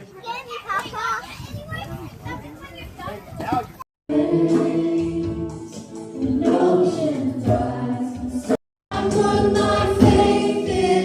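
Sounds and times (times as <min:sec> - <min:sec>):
group singing a worship song: 0:04.1 - 0:11.0.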